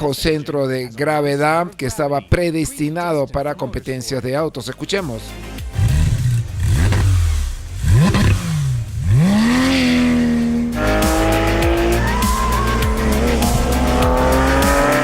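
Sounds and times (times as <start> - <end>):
car engine revving hard: 5.7 - 15.0.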